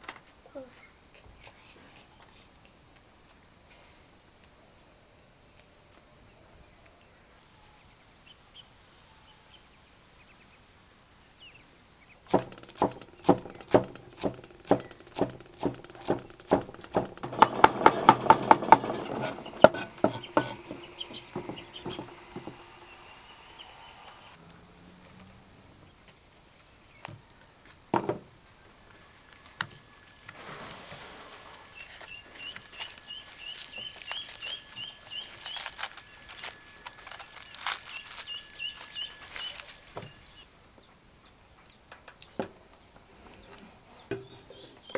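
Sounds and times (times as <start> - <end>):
high insect buzz: 11.9 - 40.5
sharp ringing knocks: 12.3 - 23.4.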